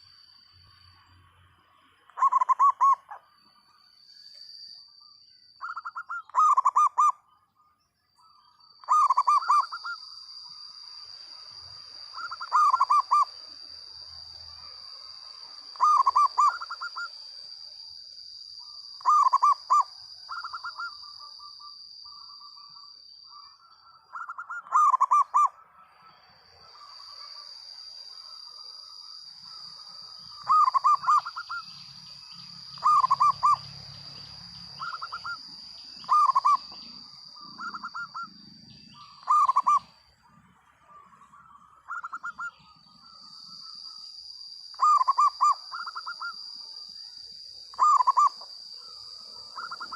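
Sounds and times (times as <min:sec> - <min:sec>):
dove cooing: 0:02.2 - 0:03.2, 0:05.6 - 0:07.2, 0:08.8 - 0:10.0, 0:12.2 - 0:13.3, 0:15.8 - 0:17.1, 0:19.0 - 0:21.0, 0:24.1 - 0:25.6, 0:30.4 - 0:31.6, 0:32.8 - 0:33.6, 0:34.8 - 0:35.4, 0:36.0 - 0:38.4, 0:39.0 - 0:39.9, 0:44.8 - 0:46.3, 0:47.7 - 0:48.4.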